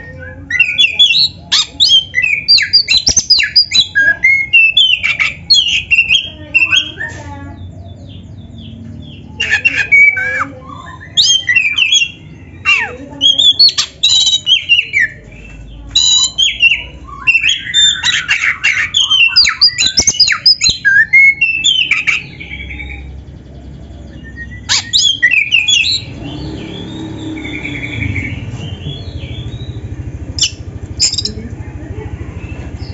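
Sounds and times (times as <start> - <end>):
bird singing varied phrases: 0.0 - 31.4
soft bird chirping: 0.0 - 31.4.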